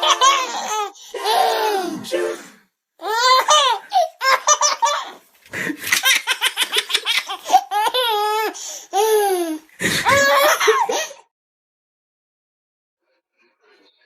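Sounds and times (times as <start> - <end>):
child laughing: 0.0 - 2.0, 3.0 - 11.2.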